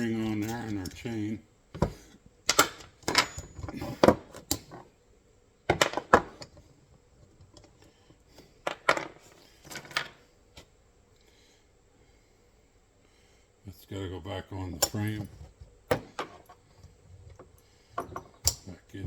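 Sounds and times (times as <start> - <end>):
metal chain clinking and clanking: 3.0 - 4.0.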